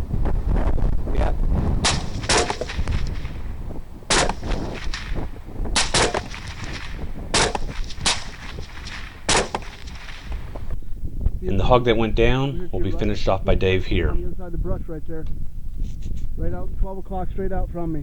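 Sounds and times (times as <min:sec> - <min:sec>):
wind rumble on microphone: 0:00.0 - 0:18.0
suppressed rifle shots: 0:01.8 - 0:10.8.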